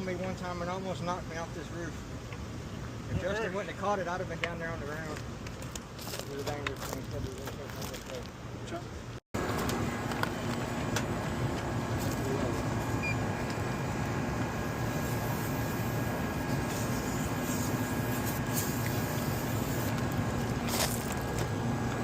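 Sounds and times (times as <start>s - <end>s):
air conditioner drone: 9.4s - 22.0s.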